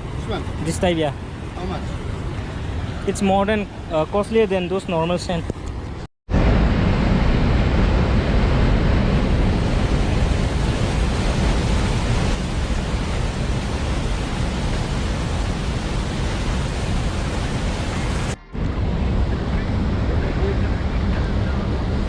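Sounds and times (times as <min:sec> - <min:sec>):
wind buffeting microphone: 0:05.3 - 0:22.0
waterfall roar: 0:06.4 - 0:22.0.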